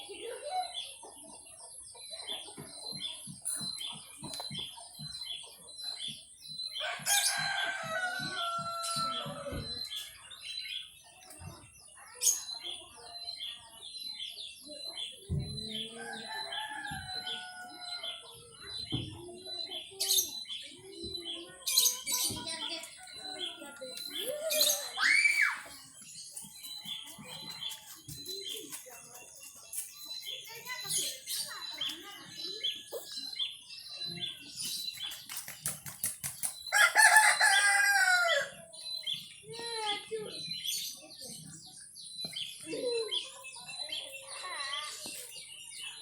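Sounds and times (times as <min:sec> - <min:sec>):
small birds chirping: 0:00.0 - 0:46.0
rooster crowing: 0:36.7 - 0:38.5.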